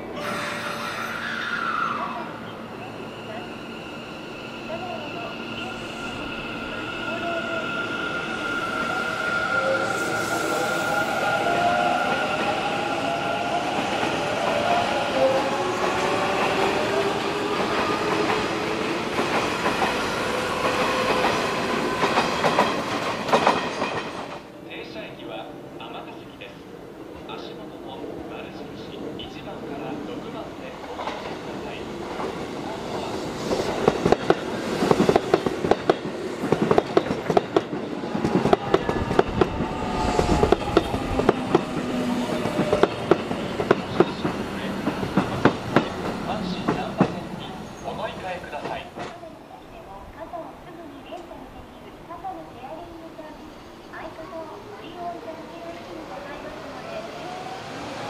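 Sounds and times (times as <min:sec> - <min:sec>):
train wheels rumbling on rails: 0:10.1 - 0:24.5, 0:30.7 - 0:49.2.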